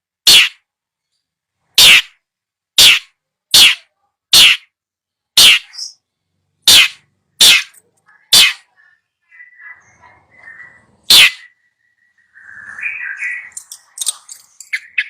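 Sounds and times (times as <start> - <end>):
bird harsh rasping calls: 0.2 - 0.6, 1.7 - 2.2, 2.8 - 4.8, 5.4 - 6.0, 6.6 - 15.0
bird twittering chatter: 5.4 - 6.1, 6.7 - 15.0.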